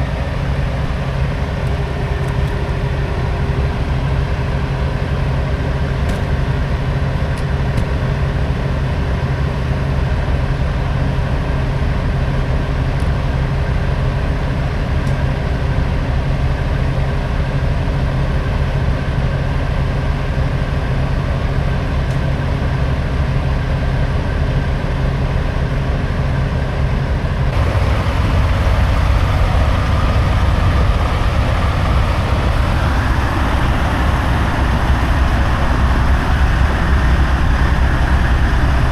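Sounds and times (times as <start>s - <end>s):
diesel truck engine running: 27.5s - 38.9s
rising whine: 27.5s - 38.9s.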